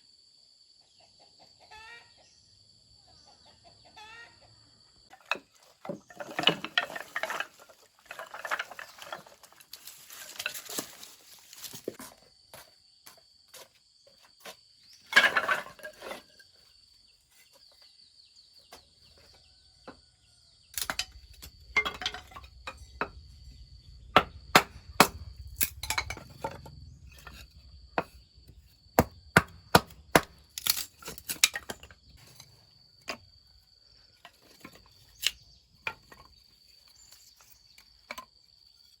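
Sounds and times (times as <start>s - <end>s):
wood clattering and rustling: 5.1s - 18.0s, 20.8s - 33.3s, 34.1s - 39.0s.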